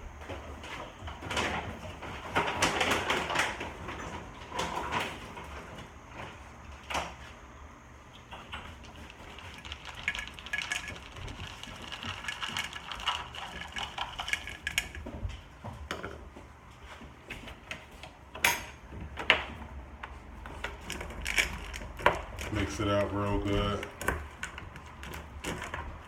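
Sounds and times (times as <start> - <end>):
dry kibble rattling in a bowl: 8.8 - 15.2, 20.7 - 26.0
utensil clinking and scraping: 9.0 - 15.1.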